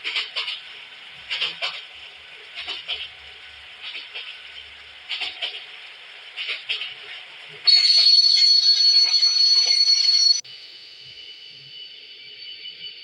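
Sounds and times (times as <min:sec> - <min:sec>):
train wheels clacking over rail joints: 0:00.0 - 0:10.3
train running rumble and hiss: 0:00.0 - 0:13.0.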